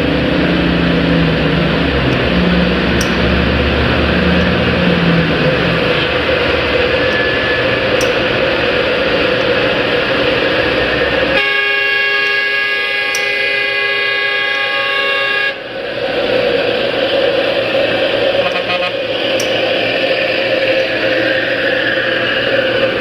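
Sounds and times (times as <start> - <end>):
road traffic noise: 0.0 - 23.0
vehicle horn blast: 11.3 - 15.6, 18.4 - 19.5.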